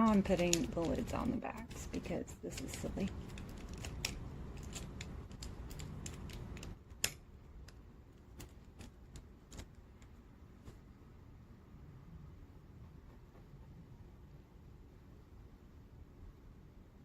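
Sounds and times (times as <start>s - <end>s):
pens handled with taps: 0.0s - 2.0s.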